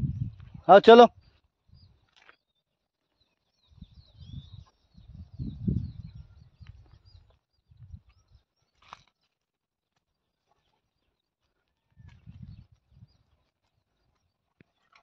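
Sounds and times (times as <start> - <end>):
low microphone rumbles: 0.0 - 0.7, 3.8 - 8.2
small birds chirping: 0.0 - 15.0.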